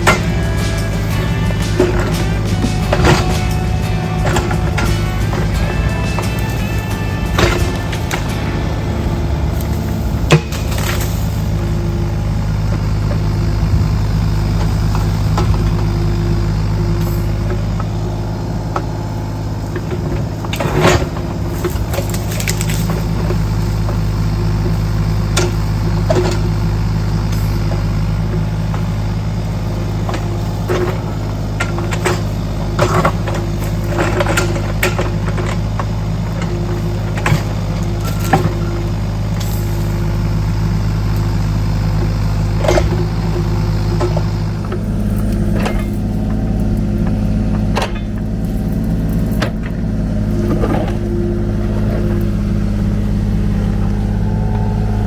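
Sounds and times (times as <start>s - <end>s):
metal knocks and clanks: 0.0s - 15.9s, 42.0s - 55.0s
excavator diesel engine running: 0.0s - 55.0s.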